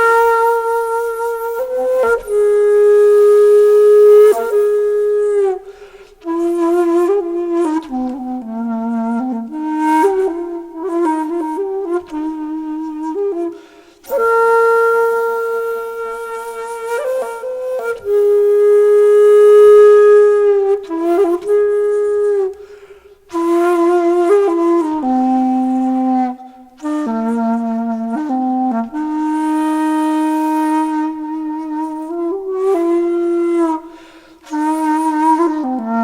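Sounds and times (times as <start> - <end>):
slow flute-like melody: 0.0 - 36.0.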